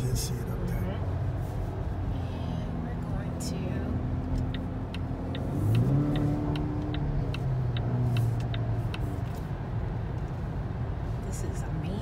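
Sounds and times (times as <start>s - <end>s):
car engine accelerating hard: 0.0s - 10.6s
light regular ticking: 4.0s - 10.4s.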